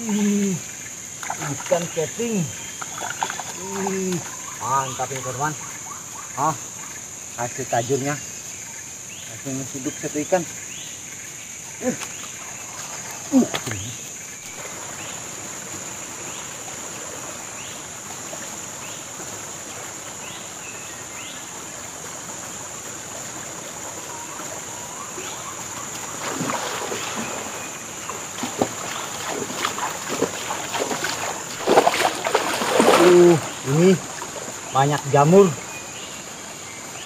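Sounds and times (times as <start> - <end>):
insects droning: 0.0 - 37.0
water sloshing and splashing: 1.0 - 5.3, 21.6 - 35.7.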